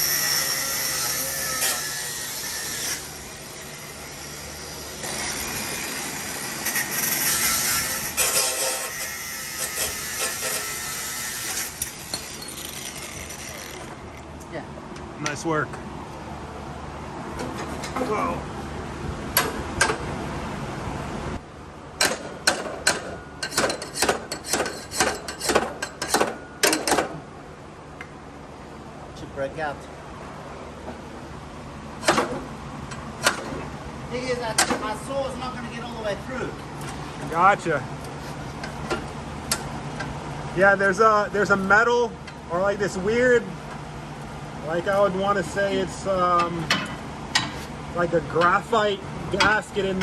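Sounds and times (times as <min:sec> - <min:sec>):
steady low hum: 0:00.0 - 0:50.0
metal scraping and rubbing: 0:05.0 - 0:14.2, 0:17.3 - 0:18.2, 0:22.6 - 0:27.0, 0:38.0 - 0:39.7.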